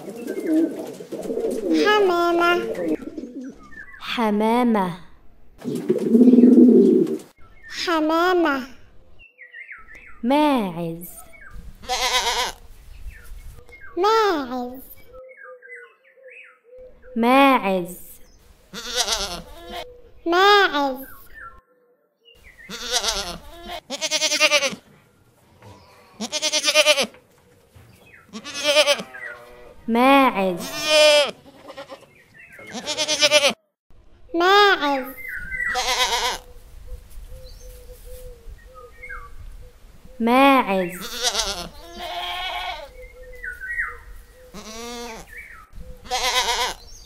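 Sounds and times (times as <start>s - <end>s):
goats bleating: 22.7s - 24.8s, 25.9s - 27.1s, 28.3s - 29.7s, 30.4s - 33.6s, 41.0s - 43.0s, 44.5s - 45.3s, 46.1s - 46.8s.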